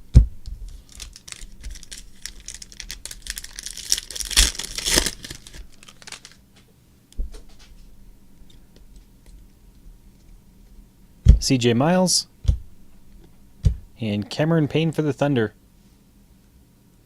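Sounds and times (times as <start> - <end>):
foil wrapper crinkling and tearing: 0.7 - 6.4
soft thump: 13.6 - 13.9.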